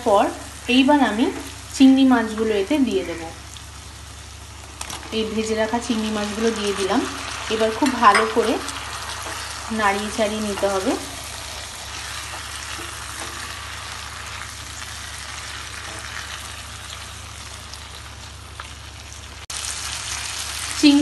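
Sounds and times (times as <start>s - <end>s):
prawns sizzling in a wok: 0.0s - 21.0s
spatula stirring in a wok: 7.5s - 17.1s.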